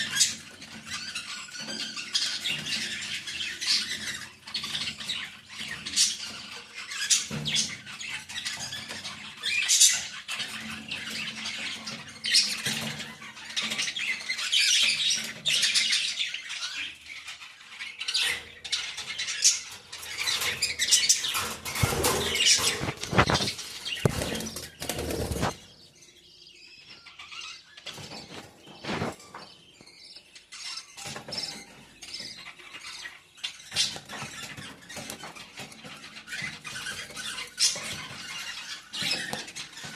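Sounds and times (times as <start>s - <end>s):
birds chirping and calling: 0.0s - 39.9s
wings flapping: 21.3s - 25.6s.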